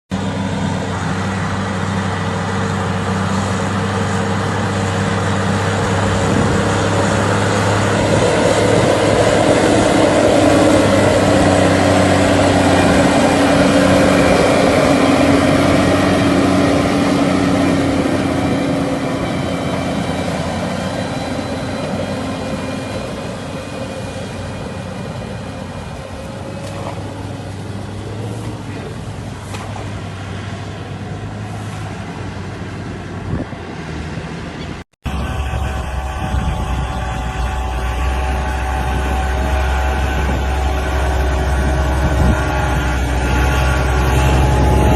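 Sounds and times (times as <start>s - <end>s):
diesel engine running: 0.1s - 44.9s.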